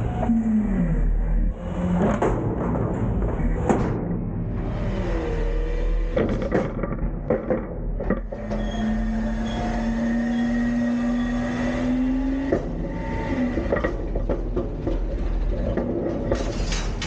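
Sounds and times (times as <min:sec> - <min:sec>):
hydraulics whining: 0:00.0 - 0:17.0
metal clanks and bangs: 0:02.0 - 0:04.6, 0:12.1 - 0:17.0.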